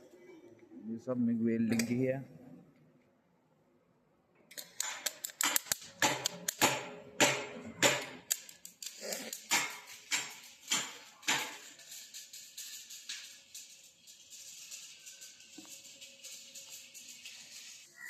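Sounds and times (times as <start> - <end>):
welder arc crackling: 8.3 - 18.0.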